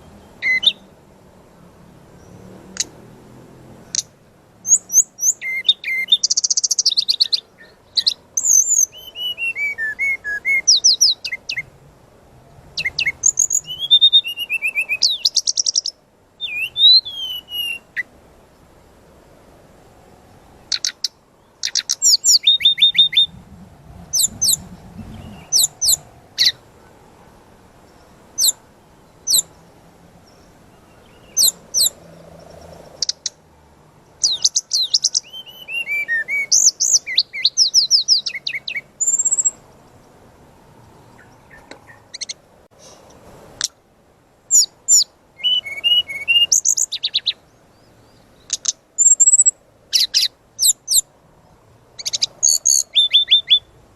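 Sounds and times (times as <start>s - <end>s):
flycatcher singing: 0.0s - 1.0s, 3.8s - 11.8s, 12.7s - 18.1s, 20.6s - 23.5s, 24.1s - 26.9s, 27.8s - 33.4s, 34.1s - 40.1s, 44.5s - 51.1s, 52.0s - 53.8s.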